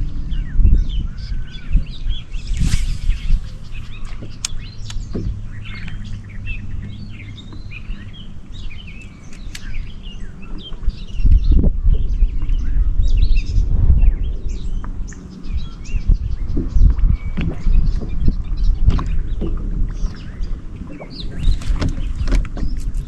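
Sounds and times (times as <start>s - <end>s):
low steady rumble: 0.0s - 22.2s
small birds chirping: 0.0s - 23.0s
brief rushing noise: 2.3s - 4.4s.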